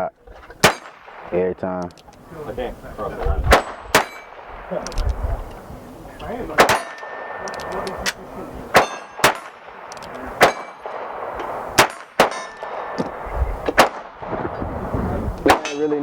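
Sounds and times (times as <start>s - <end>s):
gunshots with metallic ringing: 0.6s - 1.8s, 3.5s - 4.9s, 6.5s - 14.6s, 15.4s - 16.0s.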